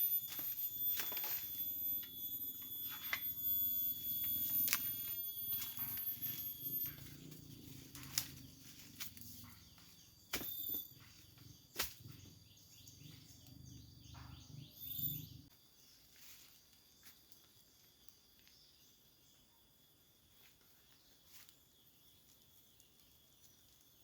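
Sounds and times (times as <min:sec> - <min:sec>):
birds trilling and chirping: 0:00.0 - 0:15.5
insects: 0:00.0 - 0:24.0.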